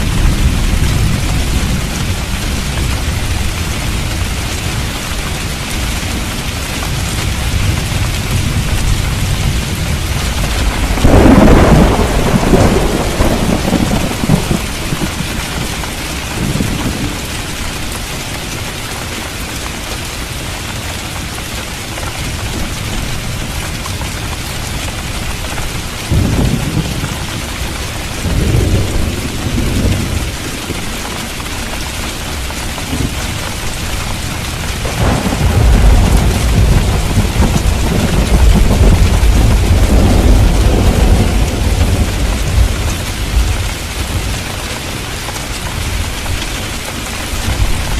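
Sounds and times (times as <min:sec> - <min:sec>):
rolling thunder: 0:00.0 - 0:04.9, 0:06.9 - 0:17.4, 0:25.3 - 0:31.0, 0:32.8 - 0:45.0
heavy rain: 0:00.0 - 0:47.9.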